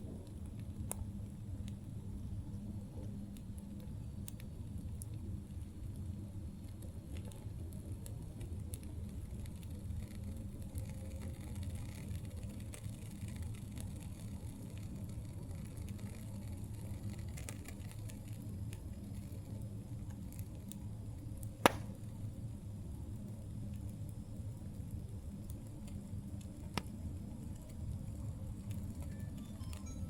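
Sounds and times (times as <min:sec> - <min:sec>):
campfire flames rumbling: 0:00.0 - 0:29.9
faint fire crackles: 0:00.0 - 0:30.0
loud sharp fire pop: 0:21.6 - 0:22.0.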